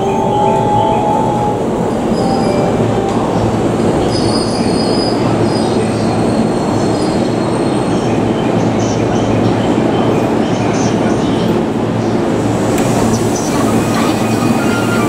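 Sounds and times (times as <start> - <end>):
train running rumble: 0.0 - 15.0
high-pitched brake squeal: 13.7 - 15.0.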